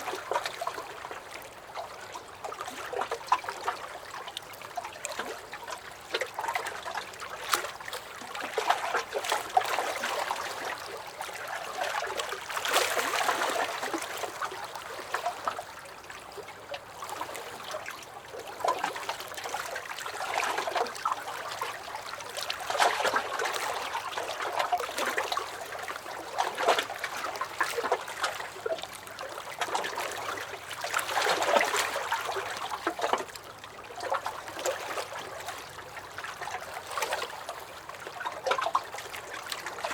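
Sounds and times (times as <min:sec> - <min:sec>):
lake waves lapping against dock: 0:00.0 - 0:39.9.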